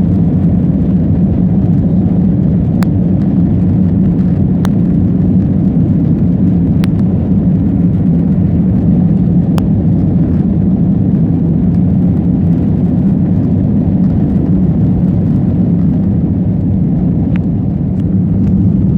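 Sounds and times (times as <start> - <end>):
jet engines rumbling: 0.0 - 18.9.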